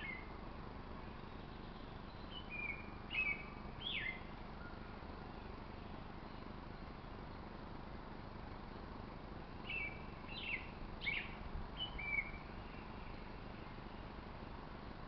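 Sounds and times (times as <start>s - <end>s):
bird chirping: 0.0s - 0.3s, 1.0s - 7.2s, 9.6s - 13.6s
steady background hiss: 0.0s - 15.0s.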